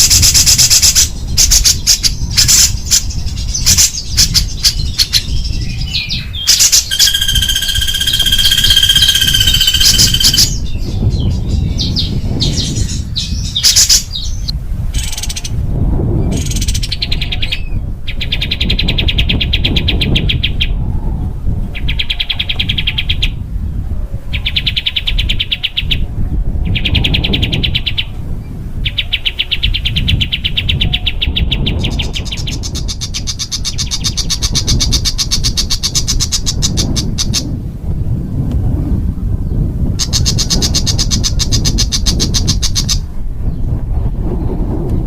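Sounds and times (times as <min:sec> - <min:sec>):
songbird trilling: 0:00.0 - 0:15.6, 0:28.9 - 0:37.5, 0:40.0 - 0:43.1.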